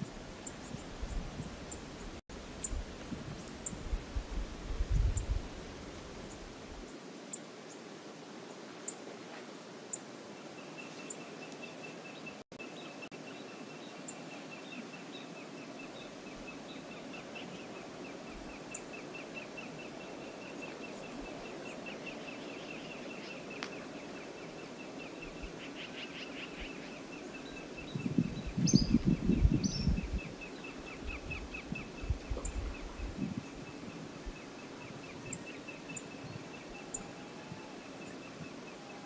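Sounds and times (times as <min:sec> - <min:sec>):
faint high ticks: 0:23.6 - 0:23.8.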